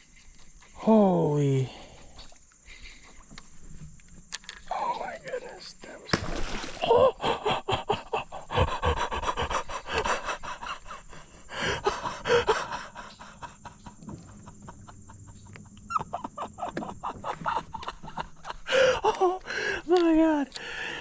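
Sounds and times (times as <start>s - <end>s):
man panting: 7.0s - 14.0s, 18.5s - 19.9s, 20.5s - 21.0s.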